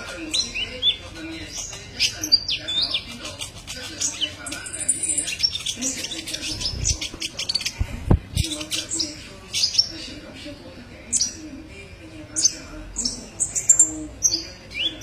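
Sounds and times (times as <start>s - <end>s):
bird chirps and trills: 0.0s - 7.8s, 8.4s - 10.1s, 12.4s - 15.0s.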